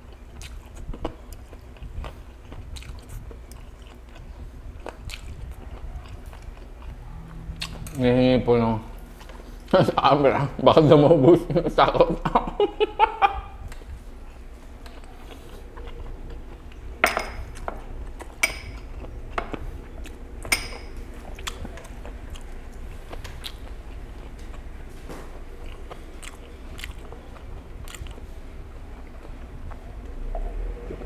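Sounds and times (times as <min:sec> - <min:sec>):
person chewing food: 0:00.0 - 0:08.0, 0:08.9 - 0:09.8, 0:13.2 - 0:31.0
glassware clinking: 0:17.0 - 0:17.4.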